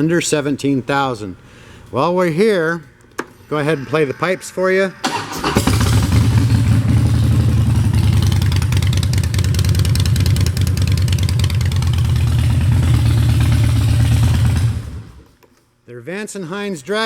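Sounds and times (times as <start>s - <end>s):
motorcycle engine idling: 5.1s - 15.2s.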